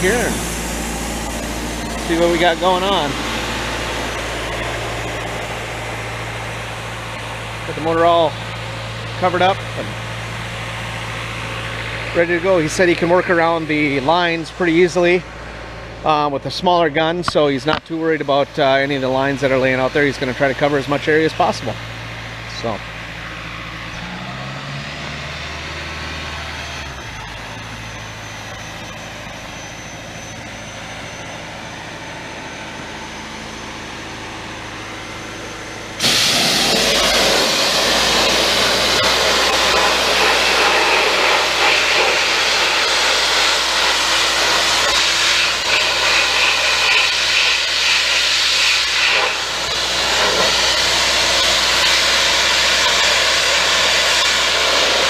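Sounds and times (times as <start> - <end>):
machine humming: 0.0 - 55.0
sandblasting gun hissing: 36.0 - 55.0.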